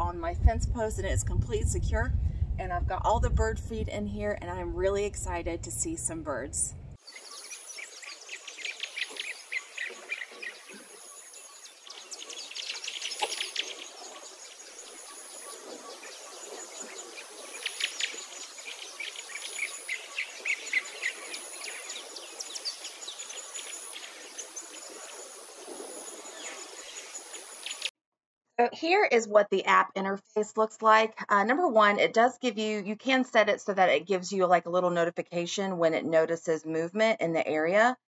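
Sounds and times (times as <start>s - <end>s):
songbirds chirping: 4.1s - 27.9s.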